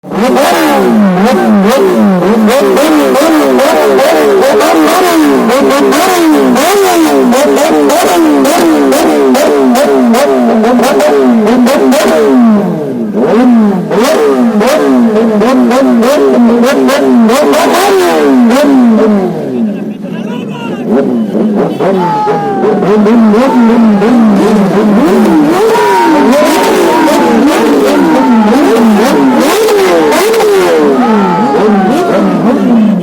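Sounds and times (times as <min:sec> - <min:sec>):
exhaust crackles: 0:00.0 - 0:33.0
motorcycle engine revving: 0:00.0 - 0:33.0.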